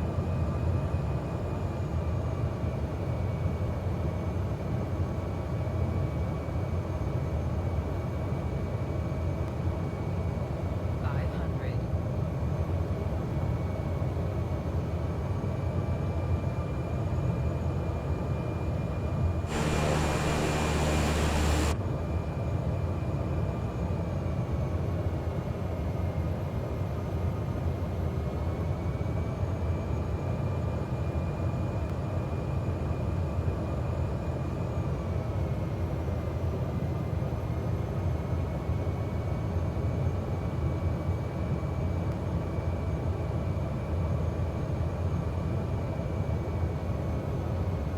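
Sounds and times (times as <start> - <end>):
harsh buzz: 19.5 - 21.8
turboprop engine drone and whine: 19.5 - 22.5.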